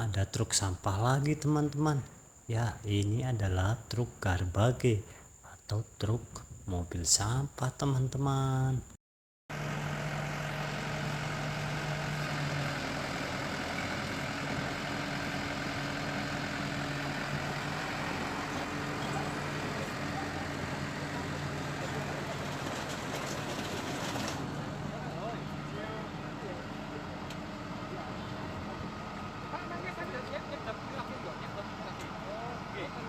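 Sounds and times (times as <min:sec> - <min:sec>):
truck engine idling: 0:09.5 - 0:33.0.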